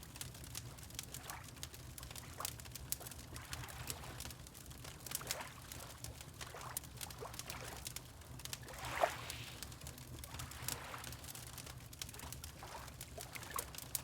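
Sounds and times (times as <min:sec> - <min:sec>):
water lapping and gurgling: 0:00.7 - 0:14.0.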